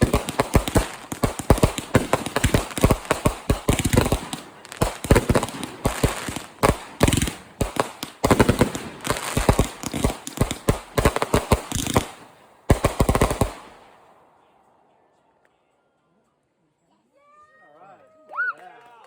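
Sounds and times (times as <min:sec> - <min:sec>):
firework cake firing volleys: 0:00.0 - 0:14.0.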